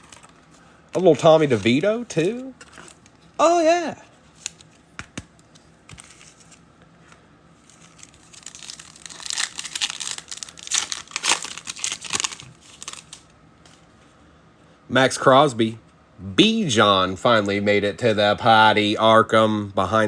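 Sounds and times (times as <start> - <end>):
wrapper tearing and crinkling: 7.6 - 13.3.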